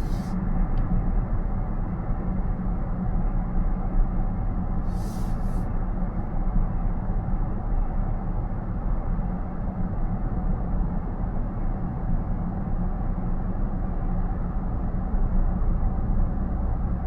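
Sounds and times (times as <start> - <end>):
brief high hiss: 0.0 - 0.3, 4.9 - 5.6
car road and tyre noise: 0.0 - 0.9.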